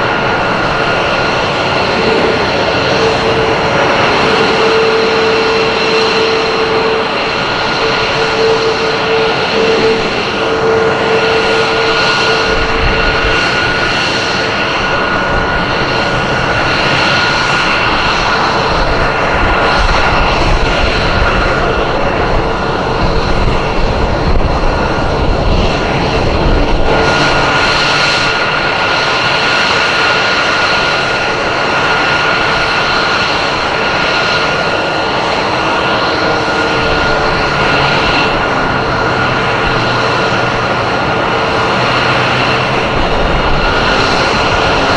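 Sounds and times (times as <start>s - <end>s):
heavy low rumble: 0.0s - 29.6s, 30.2s - 44.9s
jet engine whine: 0.0s - 44.9s.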